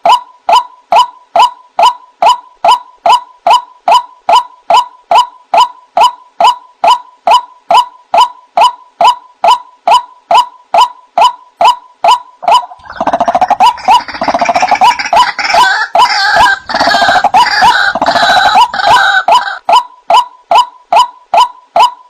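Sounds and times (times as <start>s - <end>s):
harsh chattering bird calls: 11.6s - 19.8s.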